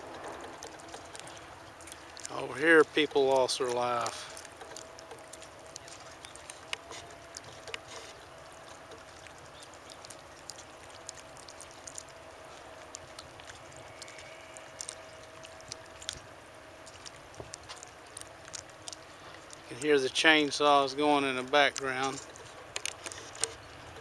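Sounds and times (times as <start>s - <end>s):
distant chainsaws running: 0.0s - 5.7s.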